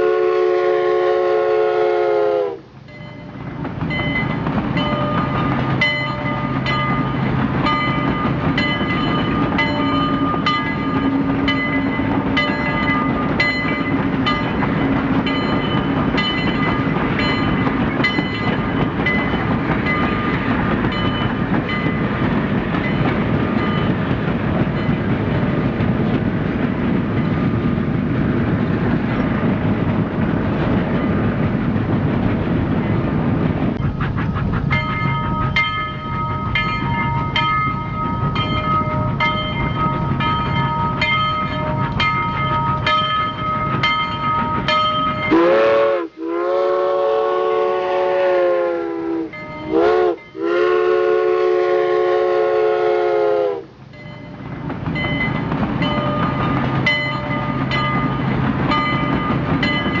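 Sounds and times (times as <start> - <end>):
train whistle blasts: 0.0 - 2.8, 45.3 - 53.8
train rumbling: 0.0 - 60.0
wheels clacking over rail joints: 2.8 - 45.8, 53.8 - 60.0.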